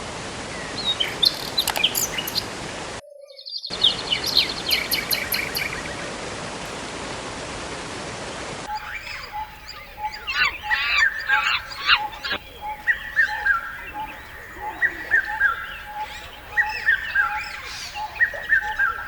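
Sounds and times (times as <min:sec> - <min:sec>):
birds chirping: 0:00.6 - 0:06.2, 0:08.7 - 0:19.0
faint steady tone: 0:08.7 - 0:19.0.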